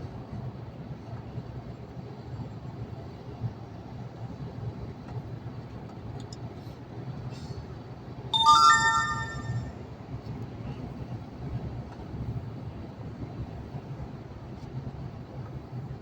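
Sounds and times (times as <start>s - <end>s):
electronic chime: 8.4s - 9.7s.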